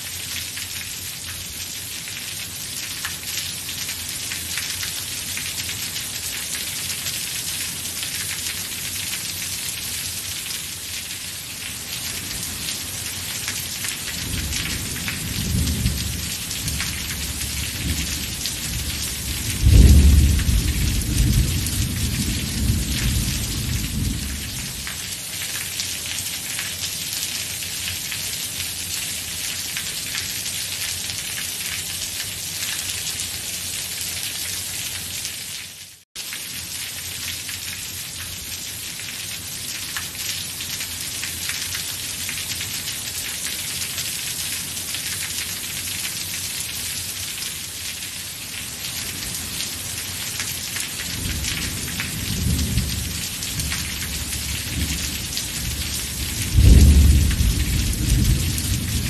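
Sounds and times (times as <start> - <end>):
thunder rumble and clap: 19.5 - 24.5, 56.5 - 59.0
rain hissing: 48.8 - 59.0.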